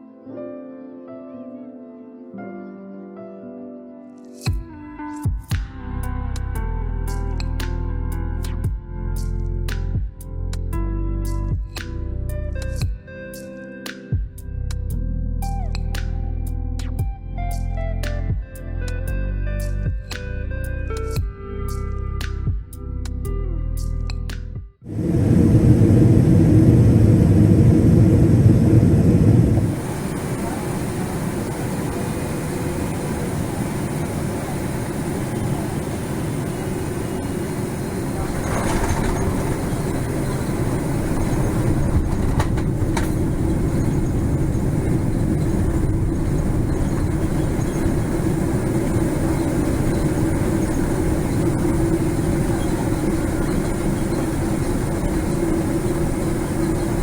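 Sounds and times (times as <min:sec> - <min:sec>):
airliner cabin engine rumble: 0:24.9 - 0:57.0
deeper rumble: 0:24.9 - 0:57.0.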